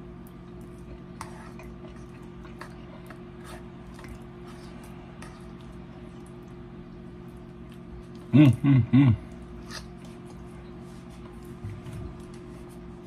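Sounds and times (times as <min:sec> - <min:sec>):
person chewing food: 0:00.0 - 0:13.0
steady low hum: 0:00.0 - 0:13.0.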